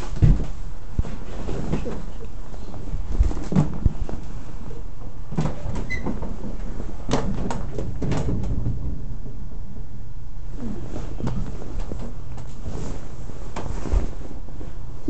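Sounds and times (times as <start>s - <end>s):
steady low rumble: 7.9s - 15.0s.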